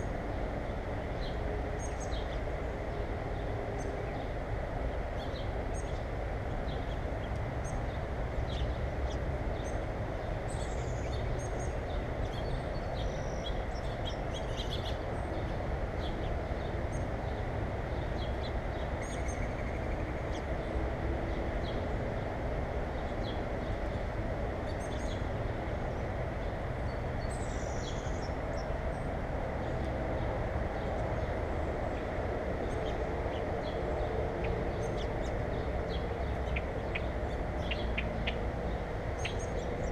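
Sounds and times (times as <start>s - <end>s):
low rumbling background noise: 0.0s - 39.9s
small birds chirping: 32.6s - 39.9s.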